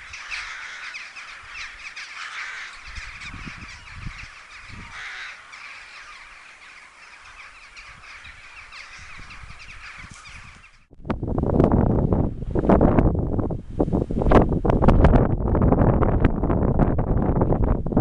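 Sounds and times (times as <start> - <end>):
crows cawing: 0.0 - 10.8.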